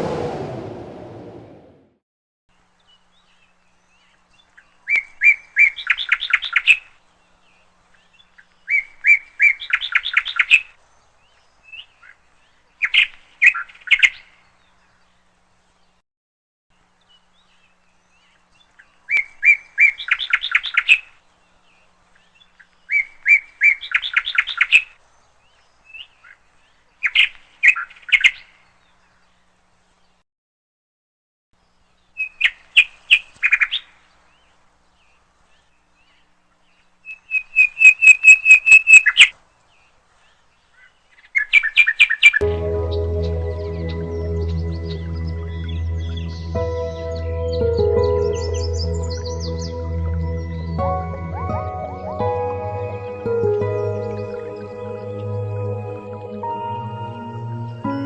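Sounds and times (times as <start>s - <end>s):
bird chirping in trilled phrases: 40.3s - 58.0s.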